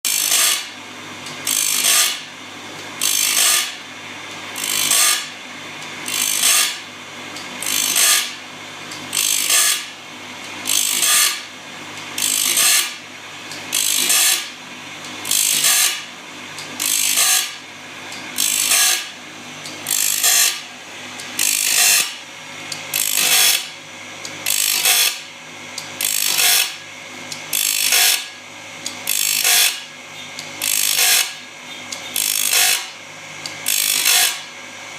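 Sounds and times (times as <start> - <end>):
low machine hum: 0.1 - 34.9
rasping grinding strokes: 4.6 - 5.3, 6.1 - 6.8, 7.6 - 8.4, 19.8 - 20.7, 22.9 - 23.7.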